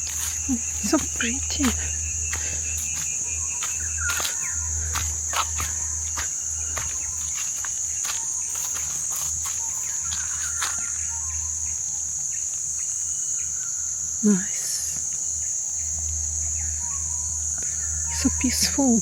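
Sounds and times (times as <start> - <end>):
low steady hum: 0.0 - 12.5
high-pitched insect drone: 0.0 - 19.0.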